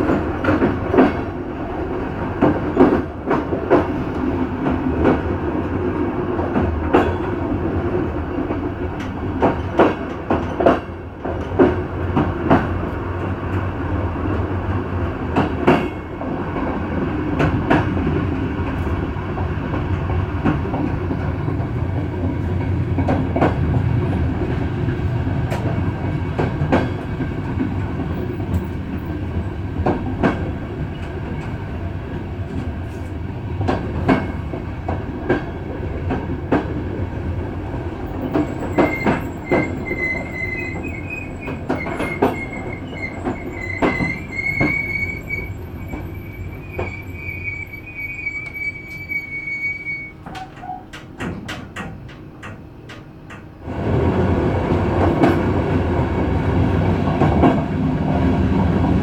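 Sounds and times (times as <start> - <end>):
train wheel rumble: 0.0 - 59.0
wheels clicking over rail joints: 50.2 - 53.7.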